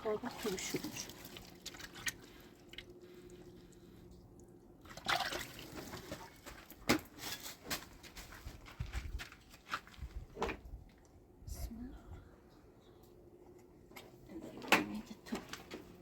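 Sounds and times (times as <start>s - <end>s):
faint steady hum: 0.0s - 7.1s, 8.2s - 16.0s
water splashing and dribbling: 0.0s - 7.1s.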